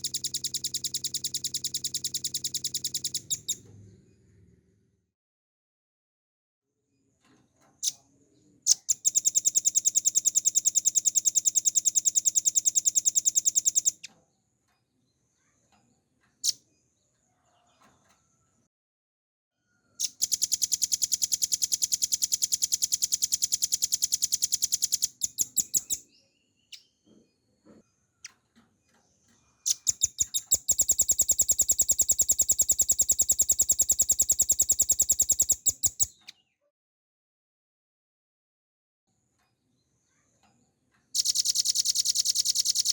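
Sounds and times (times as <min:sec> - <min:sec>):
bird singing fast trills: 0:00.0 - 0:03.6, 0:08.7 - 0:14.1, 0:20.0 - 0:27.0, 0:29.6 - 0:36.4, 0:41.2 - 0:42.9.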